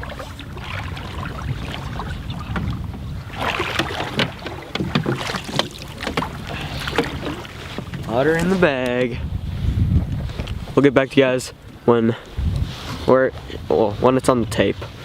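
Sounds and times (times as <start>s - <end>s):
water splashing: 0.0s - 9.6s, 11.5s - 11.9s
wind rumble on microphone: 0.0s - 15.0s
knocks against a boat: 2.4s - 9.2s.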